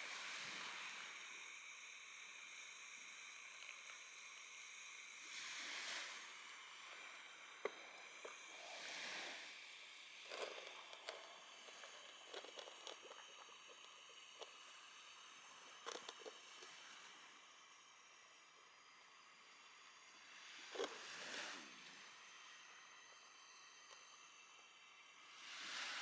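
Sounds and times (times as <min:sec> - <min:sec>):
small clicks and taps: 0:15.8 - 0:16.7.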